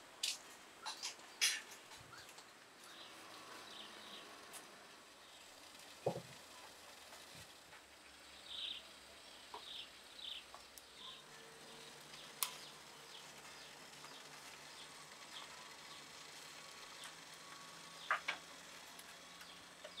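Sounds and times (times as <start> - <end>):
faint bird chirps: 8.4 - 16.1.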